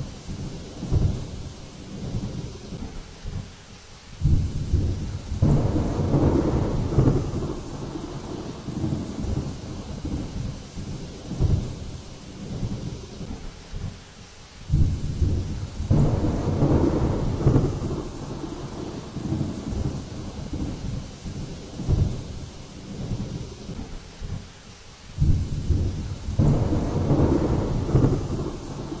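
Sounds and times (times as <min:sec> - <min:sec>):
heavy low thunder rumbles: 0:00.0 - 0:03.0, 0:04.2 - 0:14.0, 0:14.7 - 0:24.4, 0:25.2 - 0:29.0
rain hissing: 0:00.0 - 0:29.0.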